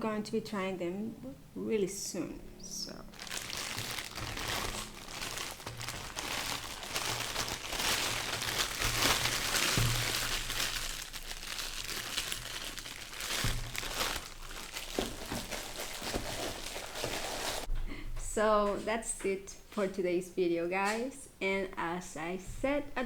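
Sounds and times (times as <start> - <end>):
packaging crinkling: 3.1 - 17.7.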